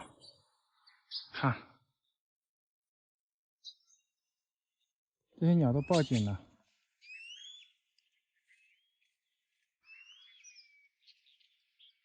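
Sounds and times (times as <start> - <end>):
small birds whistled alarm calls: 0.0 - 1.4, 5.4 - 9.1, 9.8 - 12.0
bird chirps: 0.0 - 2.2, 3.6 - 12.0.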